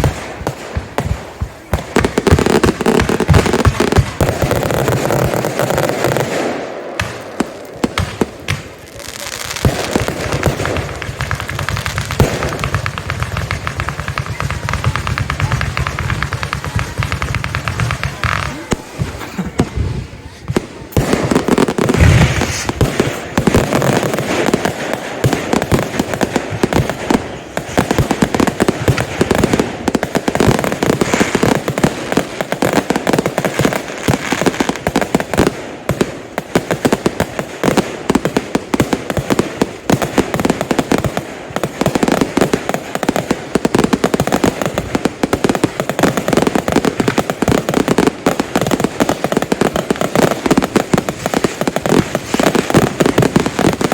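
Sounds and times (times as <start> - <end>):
fireworks barrage: 0.0 - 53.9
heavy firework bang: 12.2 - 24.6.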